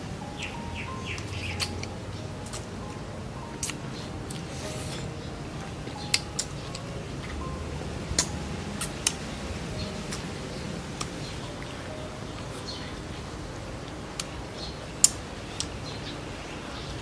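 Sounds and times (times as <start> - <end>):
crunchy chewing of fruit: 3.5 - 7.4
wet mouth smacks and clicks: 3.6 - 4.5, 8.2 - 9.2.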